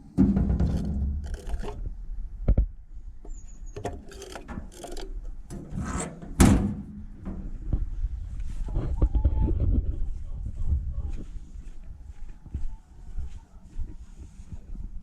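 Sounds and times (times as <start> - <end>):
gear knocking and scraping: 0.2 - 1.9, 3.7 - 6.2.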